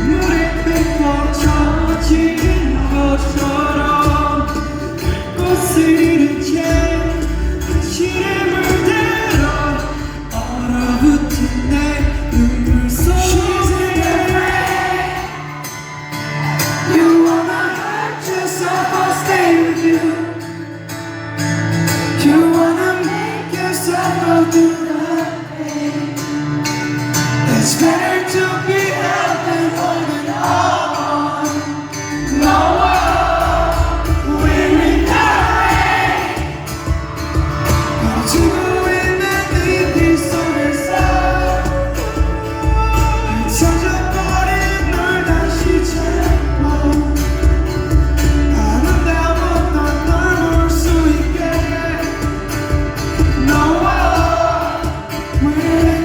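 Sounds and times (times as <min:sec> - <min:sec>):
deep bass: 0:00.0 - 0:14.5, 0:32.2 - 0:35.9, 0:40.9 - 0:54.7
live band with singing: 0:00.0 - 0:56.0.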